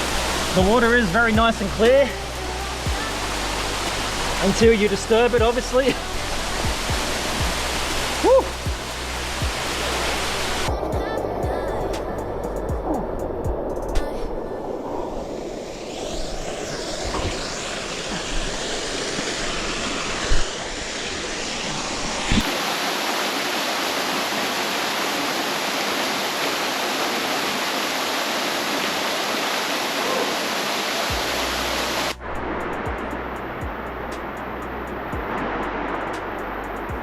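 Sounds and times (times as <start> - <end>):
waterfall rushing: 0.0 - 36.8.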